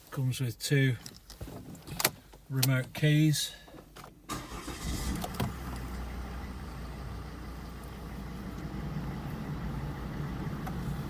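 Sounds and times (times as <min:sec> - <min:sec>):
diesel engine starting and idling: 0:04.3 - 0:11.0.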